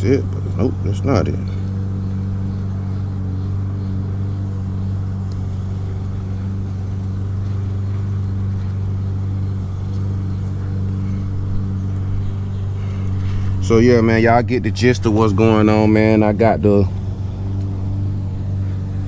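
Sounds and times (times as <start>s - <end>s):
low machine hum: 0.0s - 19.0s
faint clicks: 1.5s - 13.6s.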